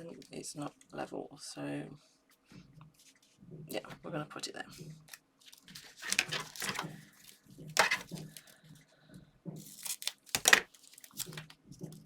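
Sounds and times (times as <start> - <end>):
paper and card crinkling: 5.1 - 8.6, 9.6 - 11.6.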